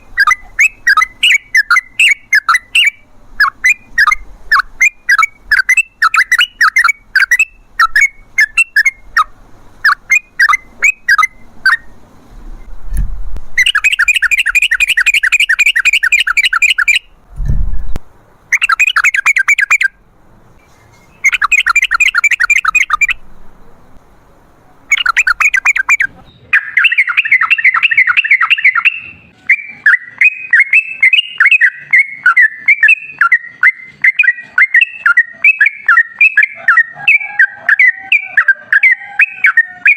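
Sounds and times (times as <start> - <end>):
bulbul chirps and trills: 0.0 - 11.9, 13.6 - 17.2, 18.5 - 20.0, 21.0 - 23.9, 24.8 - 39.9
dull low thumps: 17.2 - 18.1.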